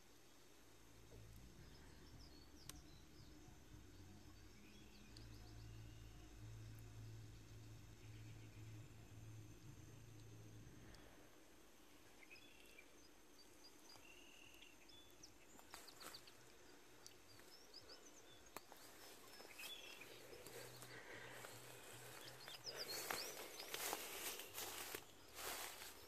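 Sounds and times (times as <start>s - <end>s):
distant bird chirps: 1.0s - 26.0s
soft clicks and taps: 18.5s - 18.8s.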